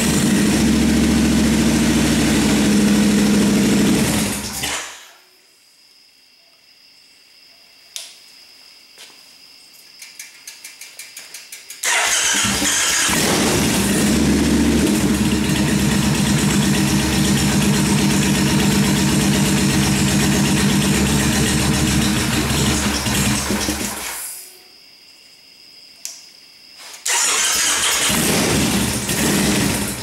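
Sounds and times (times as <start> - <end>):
motorcycle engine cranking and running: 0.0 - 4.8, 11.8 - 24.2, 27.0 - 30.0
click: 7.9 - 8.2, 10.0 - 11.8, 26.0 - 26.3.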